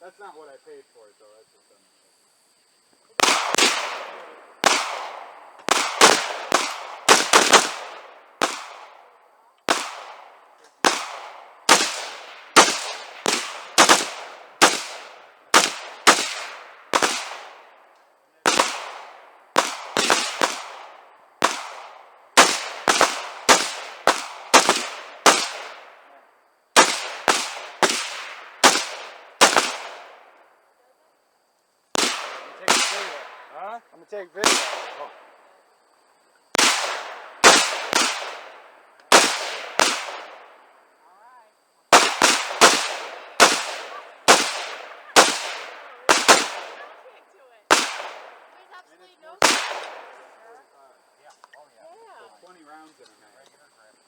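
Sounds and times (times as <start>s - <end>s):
rapid gunshots with echo: 3.2s - 9.1s, 9.7s - 17.8s, 18.4s - 26.2s, 26.8s - 30.3s, 32.0s - 33.6s, 34.4s - 35.2s, 36.6s - 40.5s, 41.9s - 47.0s, 47.7s - 48.5s, 49.4s - 50.2s.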